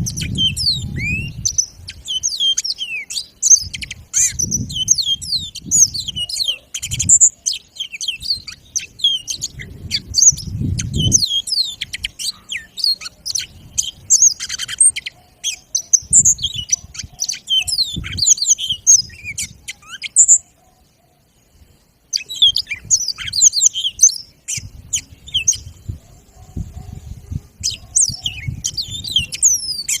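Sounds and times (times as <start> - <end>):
finch singing trills: 0.0 - 20.9, 22.1 - 30.0.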